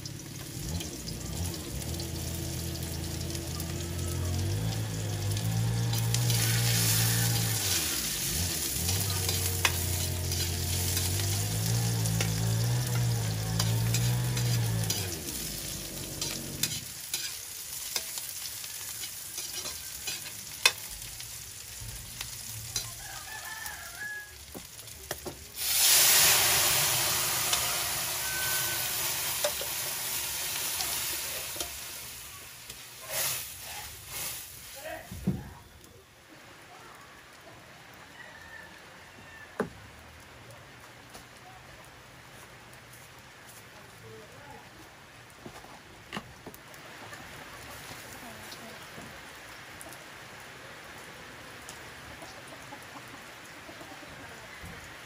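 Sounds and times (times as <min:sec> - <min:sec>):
onion and garlic sizzling in wok: 0:00.0 - 0:39.4, 0:41.6 - 0:55.0
loud hiss of liquid poured in: 0:25.6 - 0:32.4, 0:33.0 - 0:34.8.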